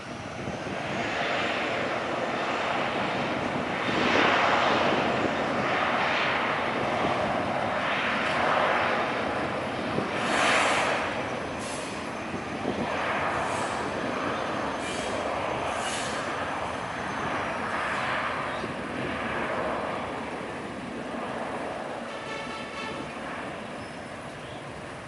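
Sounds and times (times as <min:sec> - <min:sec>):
jet engine rushing: 0:00.0 - 0:25.0.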